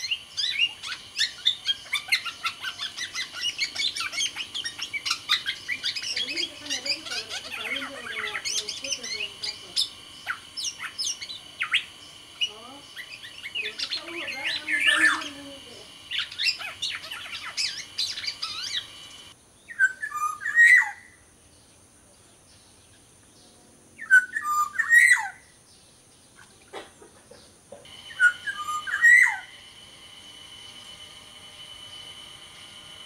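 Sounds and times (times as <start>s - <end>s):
fluty whistled bird phrase: 0.0s - 18.9s, 19.7s - 21.1s, 24.0s - 25.4s, 28.1s - 29.5s
bird chirping and whistling: 0.0s - 21.1s, 24.0s - 25.4s, 27.9s - 29.6s.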